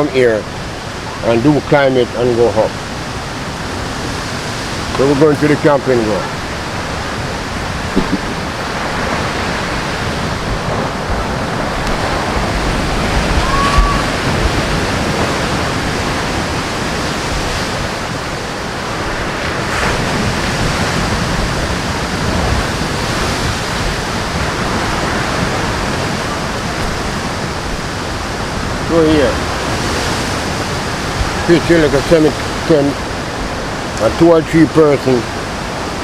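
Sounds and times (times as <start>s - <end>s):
sea surf rushing: 0.0s - 36.0s
wind buffeting microphone: 0.0s - 36.0s.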